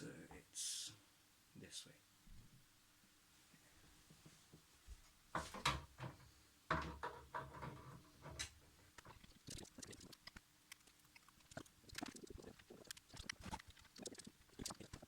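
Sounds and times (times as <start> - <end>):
plastic parts knocking and scraping: 5.4 - 9.2.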